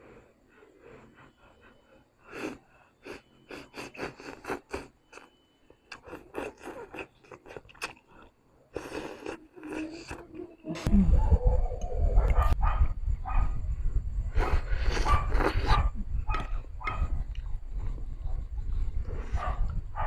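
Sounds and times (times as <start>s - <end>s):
wet chewing mouth clicks: 2.4s - 5.3s, 5.9s - 10.2s, 14.4s - 16.6s
noodle slurps: 8.7s - 10.2s, 14.4s - 15.7s.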